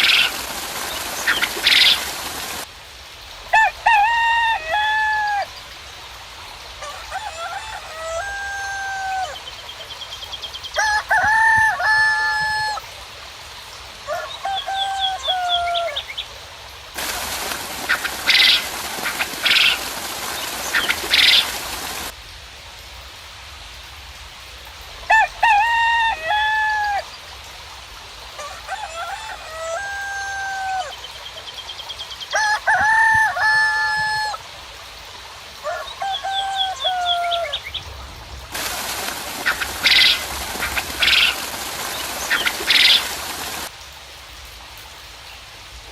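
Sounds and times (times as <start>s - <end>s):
small birds chirping: 0.0s - 2.6s, 17.0s - 22.1s, 38.6s - 43.7s
roosters crowing: 3.6s - 5.5s, 6.8s - 9.4s, 10.8s - 12.8s, 14.1s - 16.0s, 25.1s - 27.0s, 28.4s - 31.0s, 32.3s - 34.4s, 35.6s - 37.7s, 38.5s - 43.7s
loud hiss: 17.0s - 22.2s, 38.5s - 43.7s.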